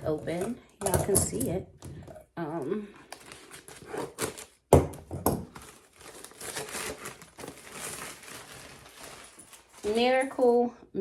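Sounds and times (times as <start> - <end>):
packaging bag rustling and tearing: 3.2 - 4.7, 5.5 - 10.4.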